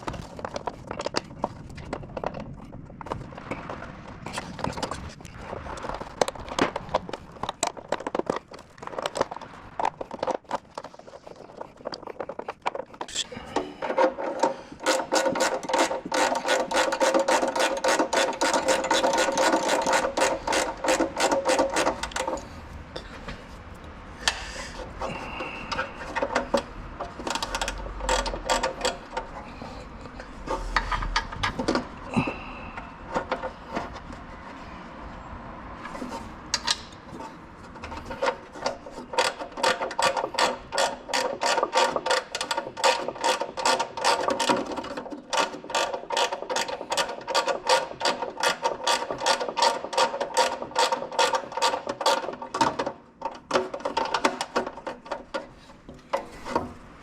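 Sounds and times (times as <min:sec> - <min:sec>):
tools scraping and knocking: 0:00.0 - 0:23.6, 0:24.2 - 0:34.7, 0:35.8 - 0:57.0
ratchet wrench clicking: 0:14.3 - 0:22.4, 0:27.2 - 0:29.1.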